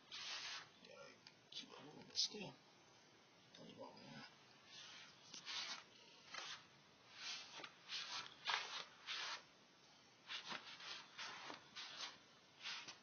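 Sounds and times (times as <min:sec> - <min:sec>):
rustling rubbing noises: 0:00.0 - 0:00.8, 0:04.6 - 0:09.5, 0:10.2 - 0:13.0.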